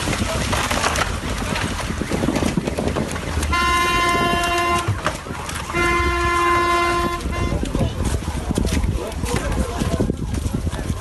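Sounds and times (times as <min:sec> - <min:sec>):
car horn blasts: 0:03.4 - 0:08.0.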